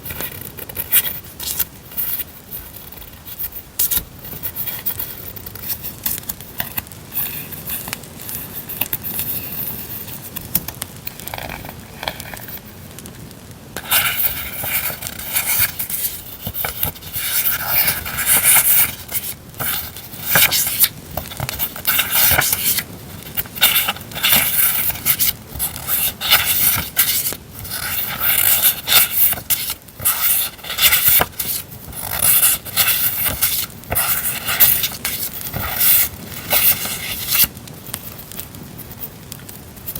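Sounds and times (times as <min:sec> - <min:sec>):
campfire crackle: 0:00.0 - 0:04.4, 0:05.0 - 0:18.2, 0:18.9 - 0:26.3, 0:26.9 - 0:28.2, 0:33.7 - 0:33.9, 0:34.9 - 0:36.5, 0:37.5 - 0:39.9
packaging rustling: 0:13.8 - 0:38.3.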